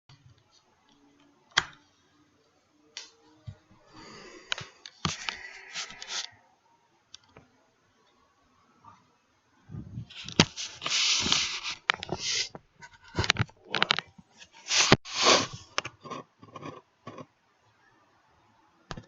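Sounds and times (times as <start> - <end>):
rustling of device handling: 10.1 - 15.9.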